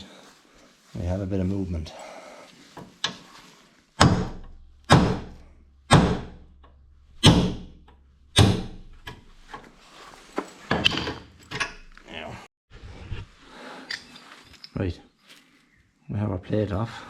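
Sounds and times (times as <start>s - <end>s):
hammer striking steel plate: 4.0s - 6.4s, 7.2s - 7.8s, 8.4s - 8.9s.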